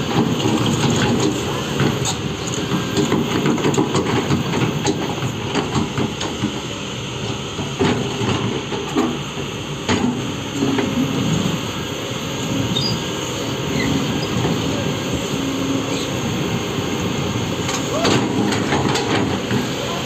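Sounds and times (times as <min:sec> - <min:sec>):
heavy machinery rumbling: 0:00.0 - 0:20.0.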